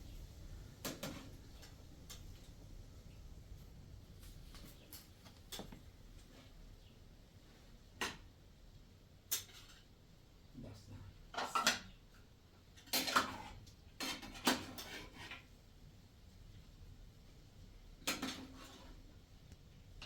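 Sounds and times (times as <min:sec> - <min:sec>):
cutlery scraping: 0:00.8 - 0:02.2, 0:09.3 - 0:09.9, 0:12.8 - 0:15.5, 0:18.1 - 0:19.0
dishes and cutlery clinking: 0:11.3 - 0:12.0, 0:12.7 - 0:15.5, 0:18.1 - 0:19.0.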